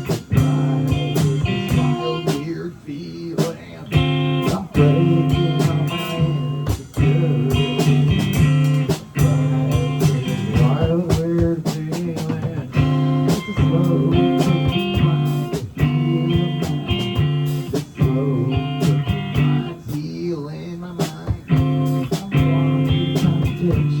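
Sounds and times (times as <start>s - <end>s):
live blues-rock band: 0.0s - 2.6s, 3.3s - 24.0s
drum hits: 3.4s - 19.6s.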